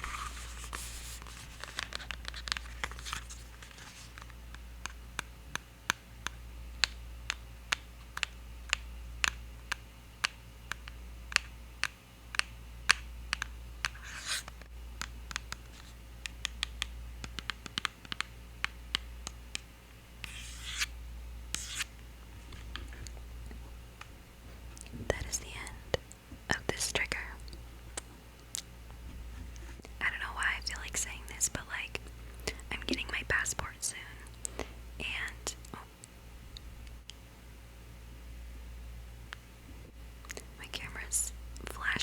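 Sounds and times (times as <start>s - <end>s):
taps and clicks on eyeliner: 16.2s - 19.7s
brief scratching: 20.2s - 20.9s, 21.5s - 21.9s.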